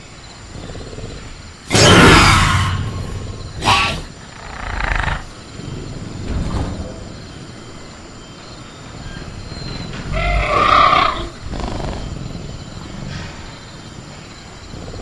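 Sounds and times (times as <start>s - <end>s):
velociraptor growl: 0.5s - 5.4s, 9.9s - 12.9s.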